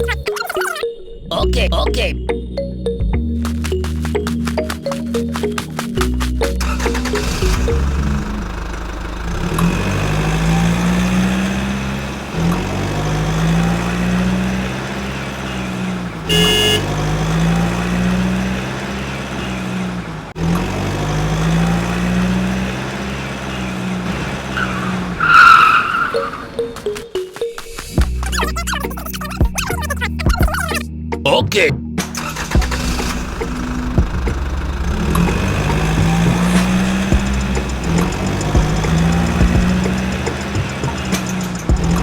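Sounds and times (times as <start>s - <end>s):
tractor engine revving: 3.5s - 27.1s, 32.0s - 42.0s.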